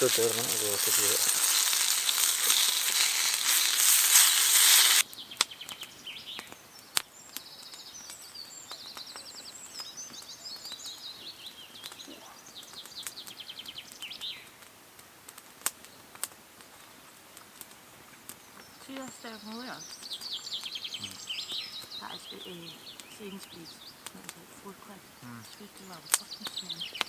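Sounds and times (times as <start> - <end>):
food sizzling in a pan: 0.0 - 5.1
songbird trilling and chirping: 0.0 - 14.6, 18.4 - 27.0
faint clicks: 11.8 - 27.0.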